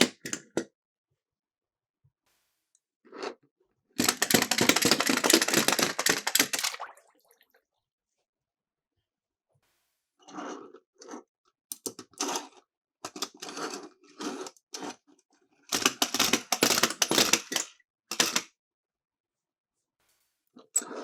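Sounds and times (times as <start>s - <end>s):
toy cars rattling and clicking: 4.0s - 6.8s, 15.7s - 18.5s.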